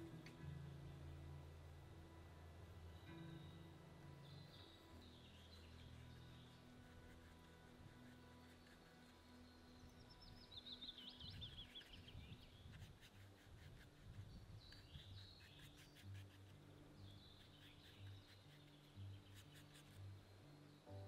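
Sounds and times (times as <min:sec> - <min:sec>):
soft low background music: 0:00.0 - 0:21.0
faint songbird trill: 0:02.7 - 0:21.0.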